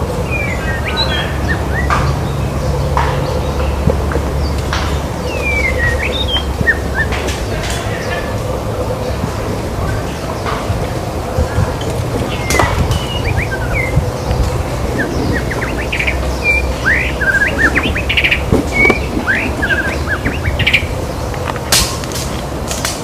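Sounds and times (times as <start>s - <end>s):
constant low rumble: 0.0s - 23.0s
songbird singing: 0.0s - 23.0s.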